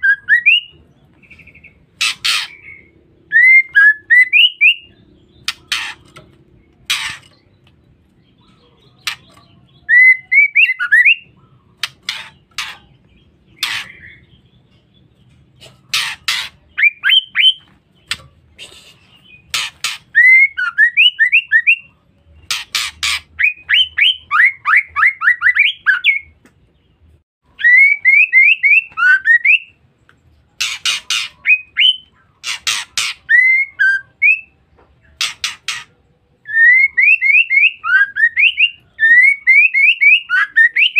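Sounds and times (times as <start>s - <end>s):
bird chirping: 0.0s - 40.9s
bird rasping calls: 1.4s - 6.2s, 6.8s - 7.5s, 9.0s - 14.4s, 15.6s - 21.7s, 22.4s - 26.2s, 30.6s - 34.4s, 35.1s - 40.9s.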